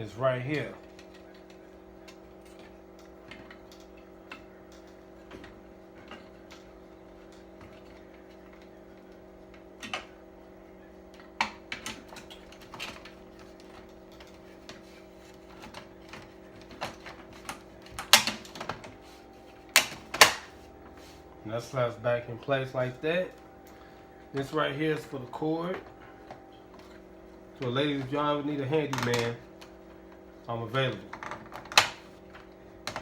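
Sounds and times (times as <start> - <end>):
steady low hum: 0.0 - 33.0
plastic parts clicking and knocking: 11.2 - 18.9, 28.9 - 29.7, 31.0 - 33.0.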